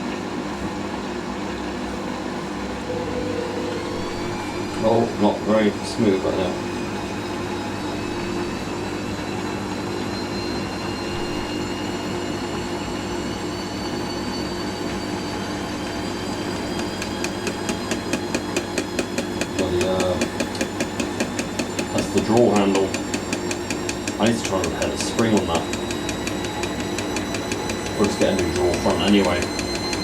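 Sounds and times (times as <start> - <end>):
motor whine: 0.0 - 30.0
washing machine drum spinning: 14.9 - 30.0.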